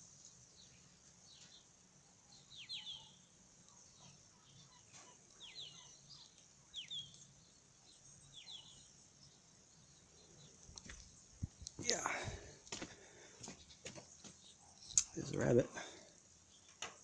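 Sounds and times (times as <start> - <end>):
bird chirps: 0.0 - 11.8.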